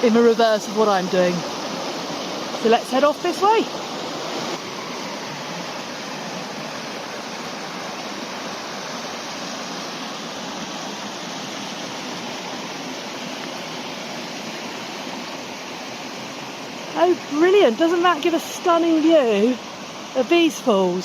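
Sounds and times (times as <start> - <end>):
river flowing over rocks: 0.0 - 21.0.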